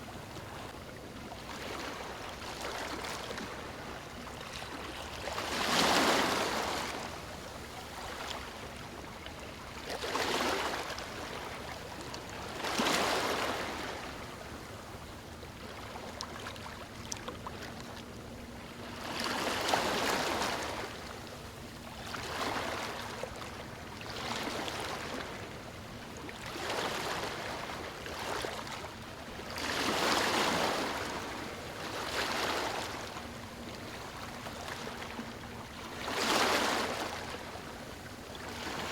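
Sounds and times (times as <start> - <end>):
waves breaking on stony shore: 5.5 - 7.0, 29.6 - 32.9.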